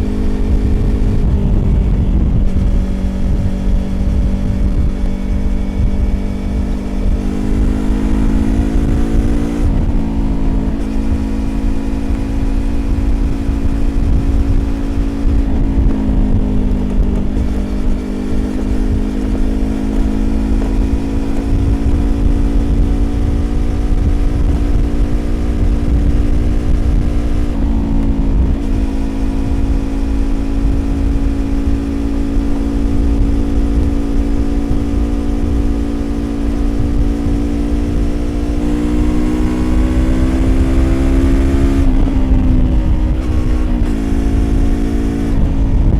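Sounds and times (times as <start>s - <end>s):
low rumble: 0.0s - 45.9s
motorcycle engine revving: 0.0s - 45.9s.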